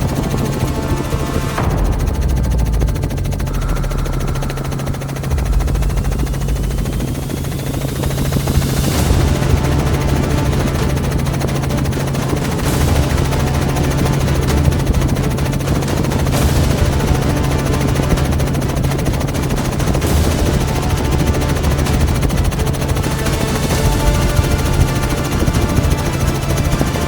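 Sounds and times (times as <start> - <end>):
helicopter rotor chopping: 0.0 - 27.0
faint rising whine: 1.9 - 9.2.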